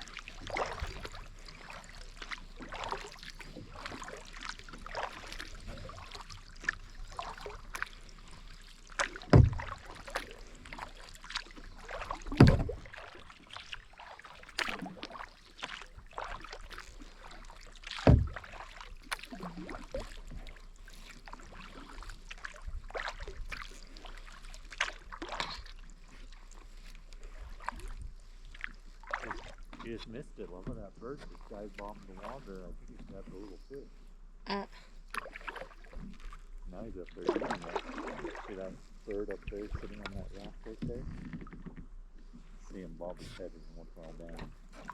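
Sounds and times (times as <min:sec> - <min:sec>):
hollow thumps on boat: 0:00.0 - 0:25.8, 0:37.4 - 0:42.6
paddle splashing in water: 0:00.0 - 0:44.9.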